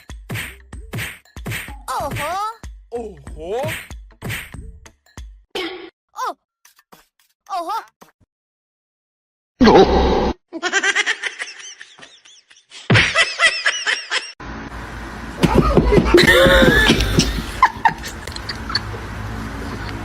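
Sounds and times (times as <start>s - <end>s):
people laughing: 15.4s - 19.1s.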